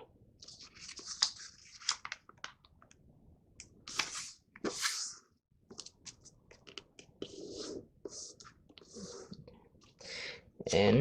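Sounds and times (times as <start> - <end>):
paper being folded and creased: 0.4 - 2.6.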